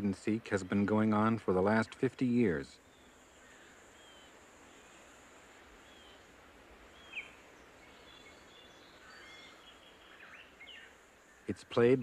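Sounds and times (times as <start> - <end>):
high insect drone: 0.0 - 12.0
soft hiss: 0.0 - 12.0
bird chirps: 1.7 - 5.1, 5.8 - 6.3, 6.9 - 12.0.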